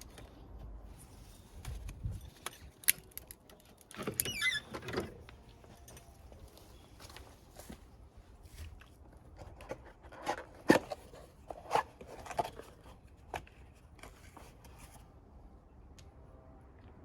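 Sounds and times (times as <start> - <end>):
tools and parts clicking and knocking: 1.6 - 6.3.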